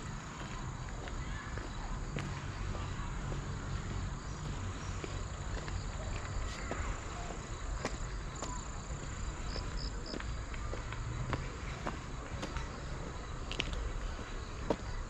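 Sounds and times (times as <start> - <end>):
light footsteps on a path: 0.0 - 15.0.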